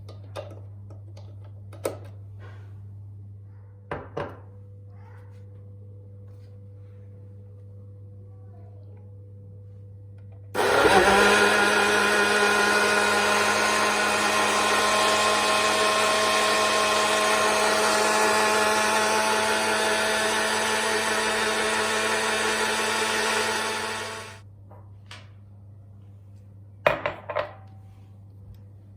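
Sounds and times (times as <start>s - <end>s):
small electric motor running: 10.6s - 24.4s.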